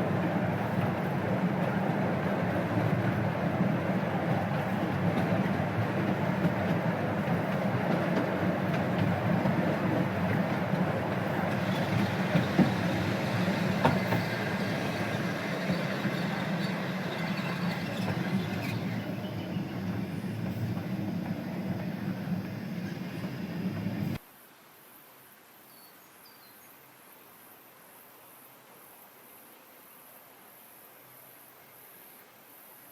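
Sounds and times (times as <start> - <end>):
train rumbling on track: 0.0 - 24.2.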